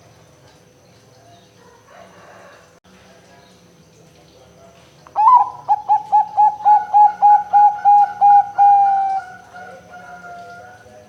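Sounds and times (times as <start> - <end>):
dove cooing: 5.2 - 10.9.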